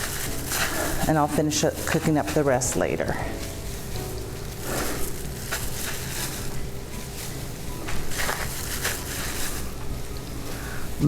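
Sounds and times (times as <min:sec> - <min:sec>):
chicken frying in hot oil: 0:00.0 - 0:11.0
oil popping: 0:00.0 - 0:11.0.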